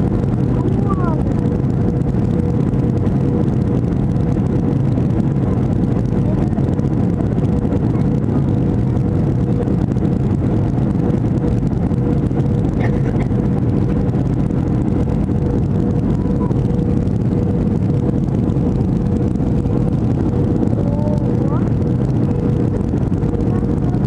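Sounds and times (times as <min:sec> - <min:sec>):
constant hum: 0:00.0 - 0:24.0
jet engines and airflow rushing: 0:00.0 - 0:24.0.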